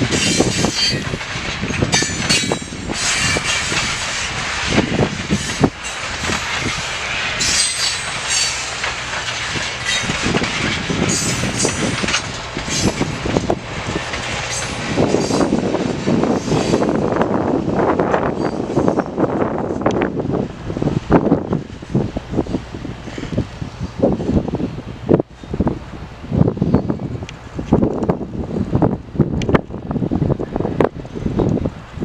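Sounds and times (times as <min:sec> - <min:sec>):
train wheels clacking over rail joints: 0:00.0 - 0:20.1.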